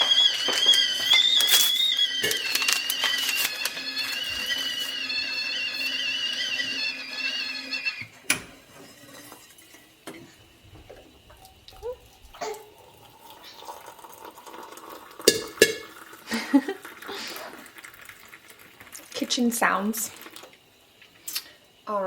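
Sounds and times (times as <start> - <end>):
kettle whistling: 0.0 - 21.8.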